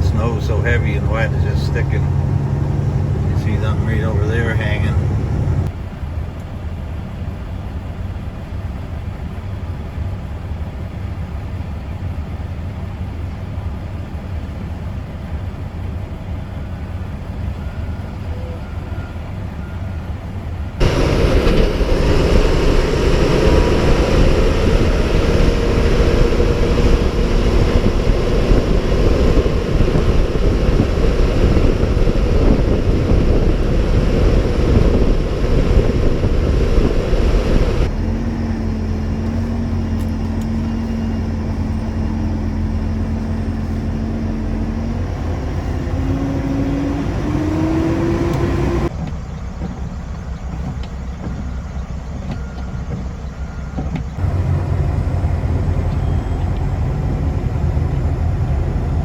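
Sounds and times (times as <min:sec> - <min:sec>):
rough rushing noise: 0:00.0 - 0:05.7, 0:20.8 - 0:48.9
faint steady whine: 0:00.0 - 0:25.2
truck engine and road rumble: 0:00.0 - 0:59.0.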